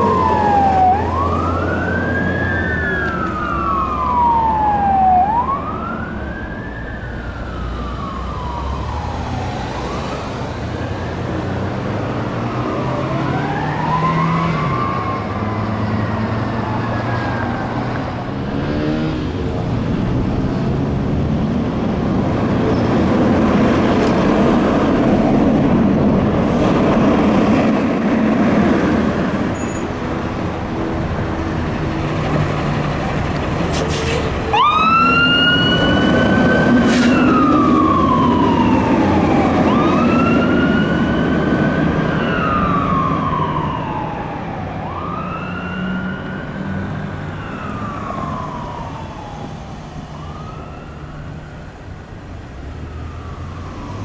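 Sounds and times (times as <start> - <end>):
siren wailing: 0.0 - 18.6, 34.3 - 54.0.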